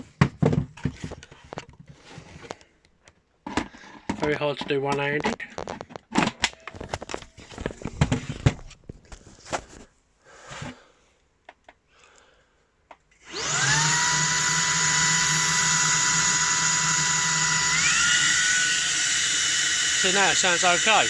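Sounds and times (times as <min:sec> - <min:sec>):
vacuum motor whining: 0:13.2 - 0:21.0.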